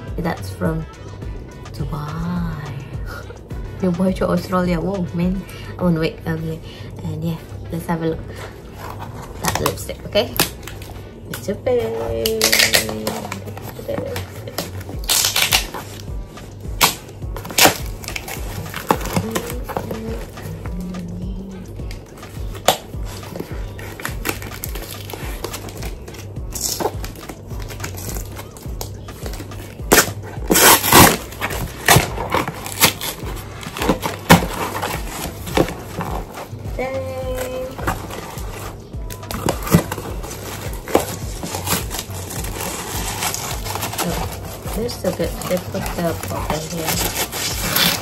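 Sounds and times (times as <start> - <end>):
background music with steady beat: 0.0 - 48.0
packaging rustling and crackling: 12.2 - 16.1, 16.8 - 21.0, 22.1 - 36.6, 37.2 - 48.0.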